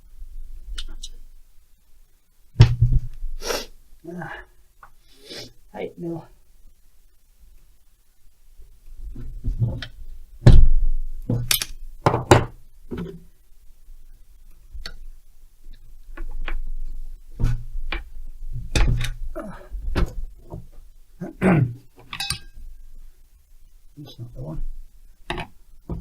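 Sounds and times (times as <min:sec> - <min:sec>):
hand tools clunking and clinking: 0:22.0 - 0:22.6.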